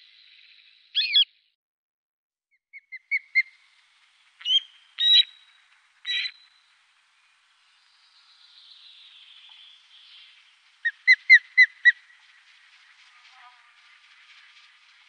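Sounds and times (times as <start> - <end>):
bird calling sharp whistled notes: 1.0 - 1.3, 4.4 - 5.4, 6.1 - 6.4, 9.4 - 12.5
faint hiss: 3.4 - 15.0.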